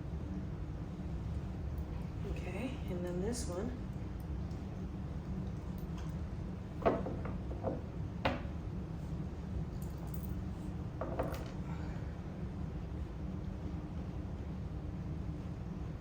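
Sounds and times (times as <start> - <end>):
knocks and clatters of hardware: 11.0 - 11.6.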